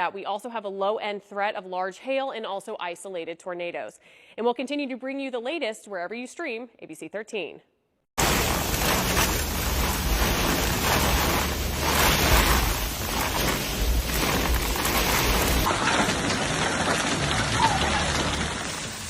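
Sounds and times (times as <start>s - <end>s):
low rumble: 8.2s - 15.7s
heavy rain falling: 8.2s - 19.0s.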